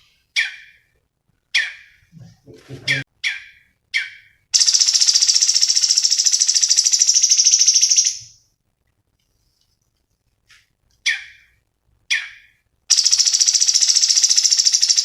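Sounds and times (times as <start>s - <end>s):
bird chirp and rapid high trill: 0.2s - 2.1s, 2.9s - 8.4s, 11.0s - 15.0s.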